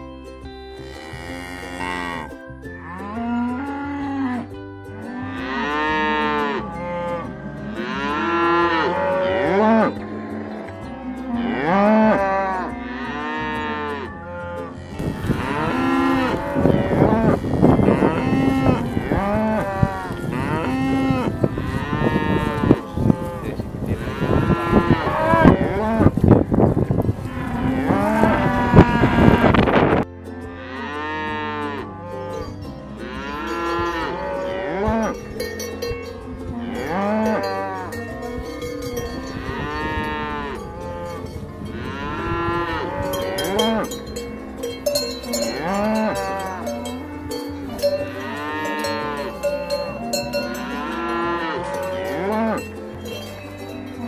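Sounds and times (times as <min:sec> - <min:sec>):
cowbells clanking: 0:00.0 - 0:54.0
cattle mooing: 0:00.8 - 0:02.3, 0:05.1 - 0:26.2, 0:27.2 - 0:30.0, 0:33.0 - 0:35.3, 0:36.5 - 0:44.4, 0:45.2 - 0:52.6.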